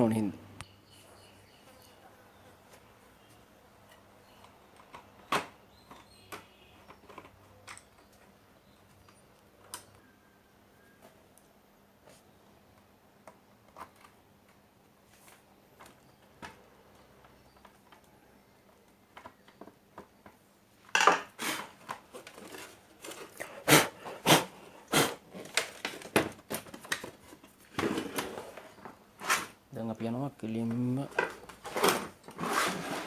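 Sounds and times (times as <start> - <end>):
plastic parts clicking and clattering: 4.4 - 8.3, 25.4 - 28.4, 31.0 - 33.0.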